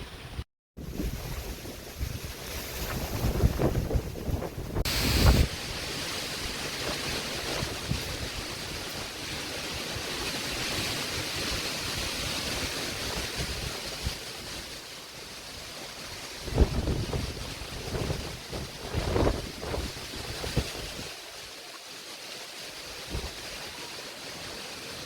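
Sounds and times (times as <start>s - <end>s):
wind buffeting microphone: 0.1s - 14.6s, 16.4s - 21.2s, 22.9s - 23.6s
storm wind rushing: 0.8s - 14.2s, 16.4s - 21.1s.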